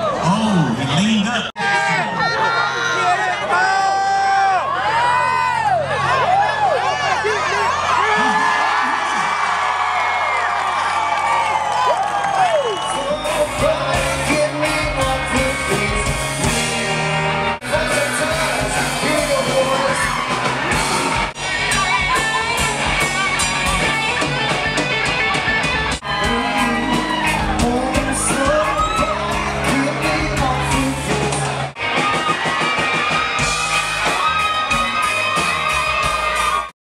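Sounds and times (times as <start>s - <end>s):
music with singing: 12.9s - 36.7s.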